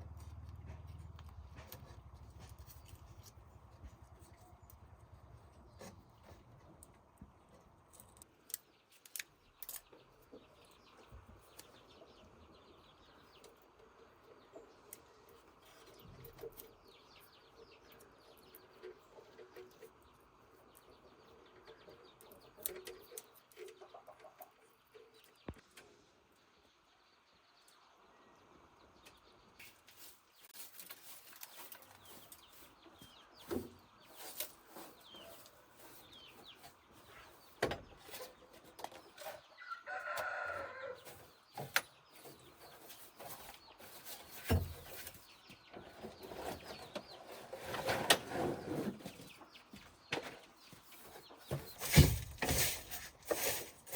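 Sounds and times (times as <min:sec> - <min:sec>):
rooster crowing: 0:39.6 - 0:41.0.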